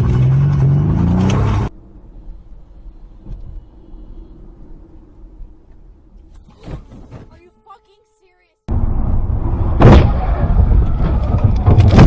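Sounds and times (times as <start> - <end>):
car driving rumble: 8.7 - 12.0.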